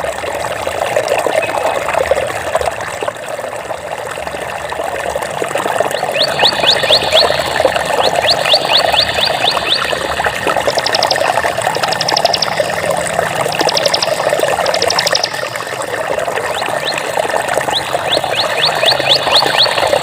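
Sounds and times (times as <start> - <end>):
water trickling: 0.0 - 20.0
high-pitched rapid trills: 6.5 - 12.9, 13.6 - 15.8.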